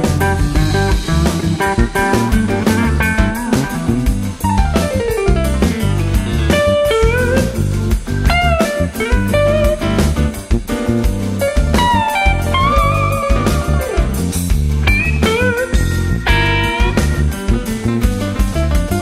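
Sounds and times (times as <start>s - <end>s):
bass and drums: 0.0s - 19.0s
blues-rock lead guitar: 0.0s - 19.0s.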